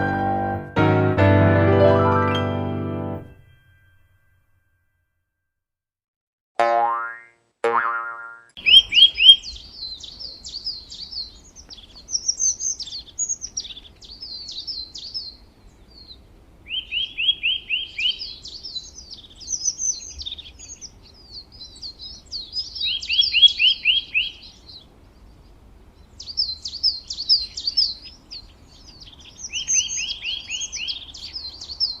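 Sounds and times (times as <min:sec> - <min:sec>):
bird chirping and twittering: 0:08.6 - 0:32.0.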